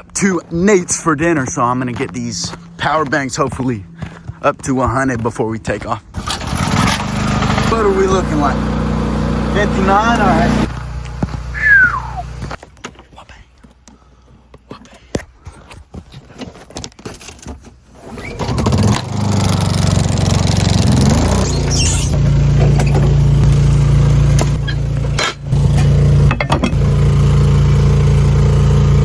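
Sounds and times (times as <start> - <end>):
small engine starting and running: 6.1 - 12.6, 18.0 - 29.0.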